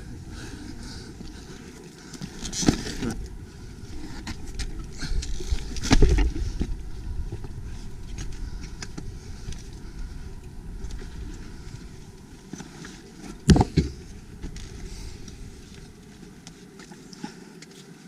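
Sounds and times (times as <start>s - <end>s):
crunching and scraping knocks: 4.0s - 16.5s.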